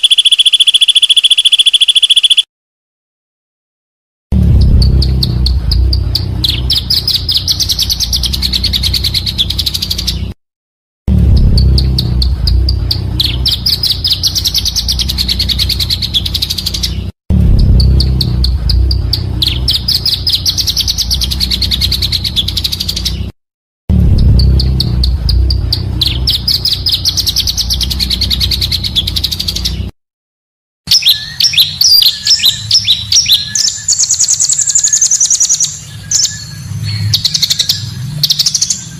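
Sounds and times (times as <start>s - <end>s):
bird song high trill: 0.0s - 2.5s, 4.5s - 10.4s, 11.3s - 23.3s, 24.3s - 29.9s, 30.9s - 38.9s
sharp bird chirps: 0.0s - 2.5s, 4.4s - 10.4s, 11.1s - 23.4s, 24.2s - 29.9s, 30.9s - 38.9s
low background rumble: 4.4s - 9.6s, 11.1s - 23.1s, 23.9s - 29.7s.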